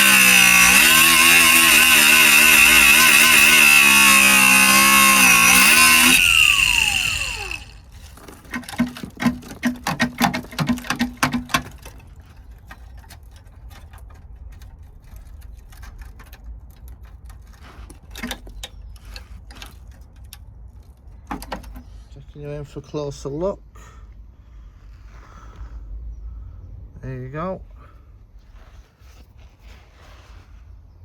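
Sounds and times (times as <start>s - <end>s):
angle grinder cutting steel: 0.0s - 7.9s
grinder winding down whine: 0.0s - 7.9s
sharp metallic knocks and taps: 8.5s - 12.0s.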